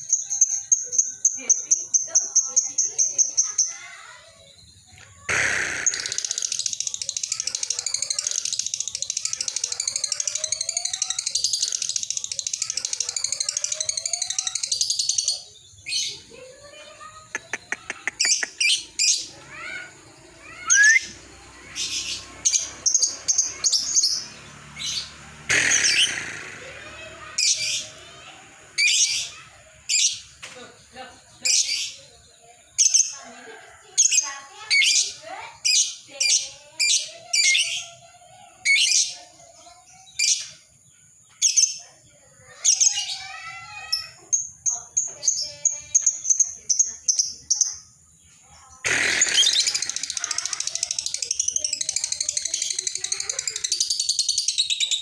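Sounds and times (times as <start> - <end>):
bird chattering trill: 5.0 - 30.3, 48.7 - 55.0
shrill bird chirps and squeaks: 5.2 - 16.3, 20.4 - 28.0, 34.2 - 38.1, 38.7 - 40.6, 41.3 - 47.9, 48.8 - 55.0.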